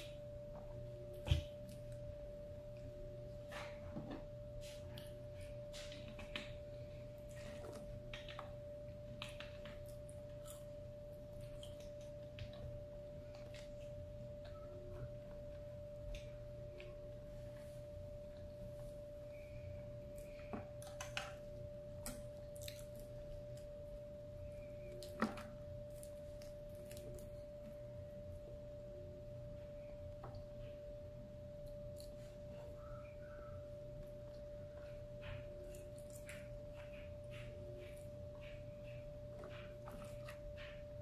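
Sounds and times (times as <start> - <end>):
faint steady whine: 0.0 - 41.0
person chewing: 9.1 - 12.6, 21.9 - 23.2.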